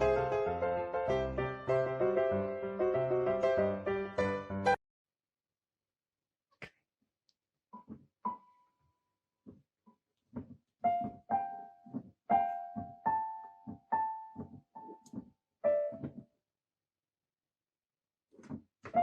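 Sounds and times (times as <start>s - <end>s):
piano notes and chords: 0.0s - 4.8s, 10.8s - 16.2s.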